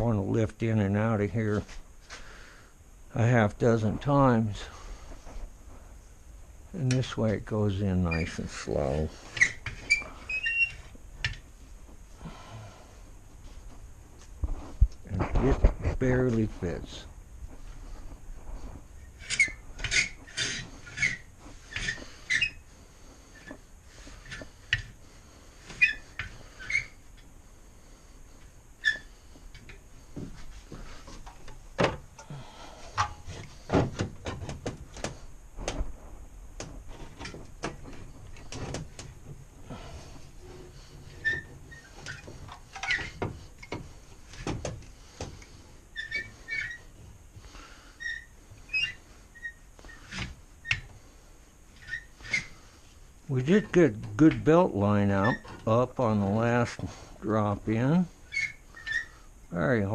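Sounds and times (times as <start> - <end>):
pulleys squeaking: 58.3 - 59.2.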